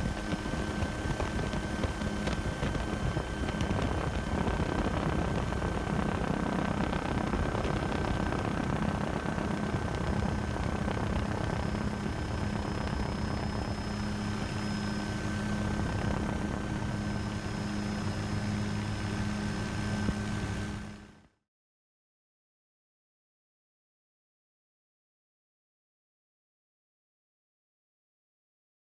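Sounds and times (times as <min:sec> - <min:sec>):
helicopter flying: 0:00.0 - 0:21.2.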